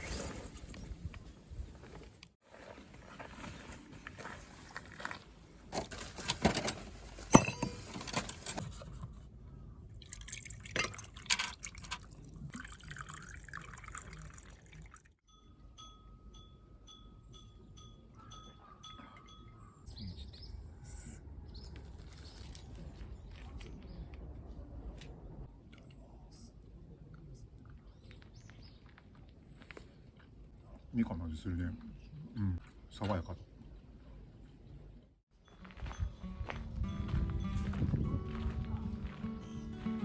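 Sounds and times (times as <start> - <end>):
container clinks and knocks: 5.8 - 8.8
liquid pouring: 9.9 - 15.2.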